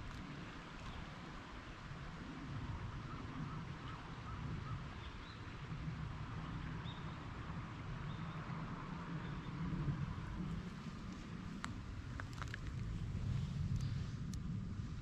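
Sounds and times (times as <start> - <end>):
steady low rumble: 5.6 - 15.0.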